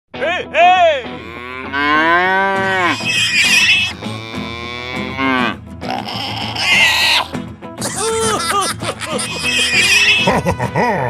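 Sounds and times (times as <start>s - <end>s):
cattle mooing: 1.1s - 7.3s, 9.1s - 10.3s.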